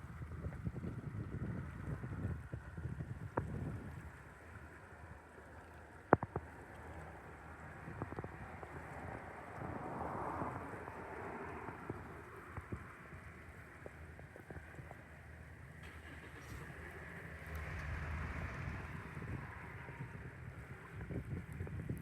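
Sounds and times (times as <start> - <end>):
water: 0.0 - 22.0
wind: 0.0 - 22.0.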